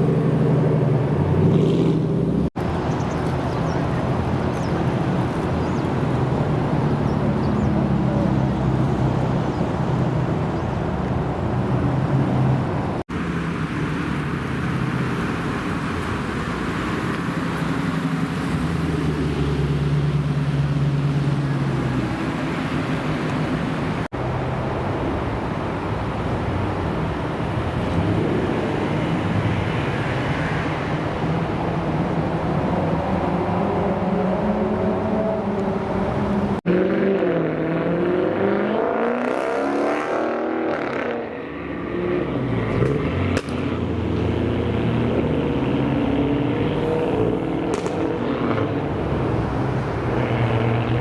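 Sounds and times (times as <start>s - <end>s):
engine revving up: 33.0s - 51.0s
car engines running at low revs: 42.2s - 51.0s.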